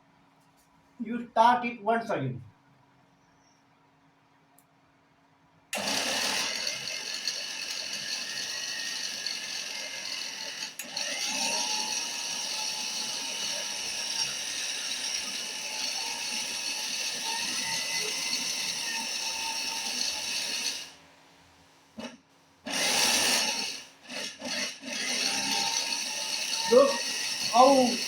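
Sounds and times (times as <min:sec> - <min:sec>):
mixer grinder grinding grain: 0:05.8 - 0:21.0, 0:22.7 - 0:28.0.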